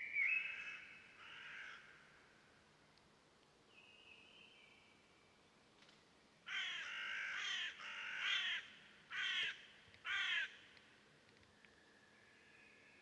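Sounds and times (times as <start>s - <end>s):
crow cawing: 0.5s - 2.0s, 6.5s - 10.6s.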